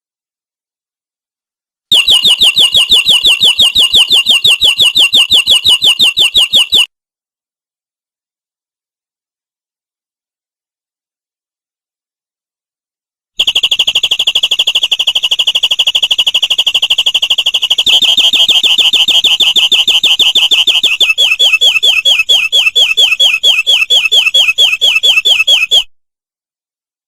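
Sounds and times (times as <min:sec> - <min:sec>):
canary singing: 0:01.9 - 0:06.9, 0:14.6 - 0:25.9.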